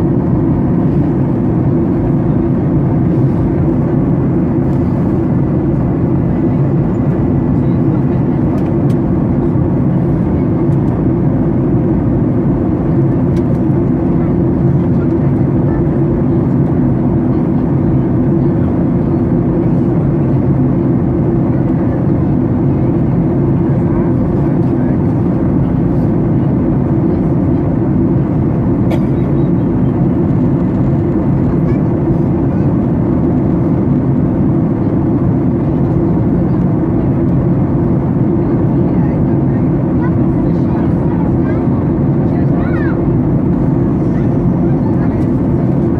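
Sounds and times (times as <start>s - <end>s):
airliner cabin rumble: 0.0s - 45.9s.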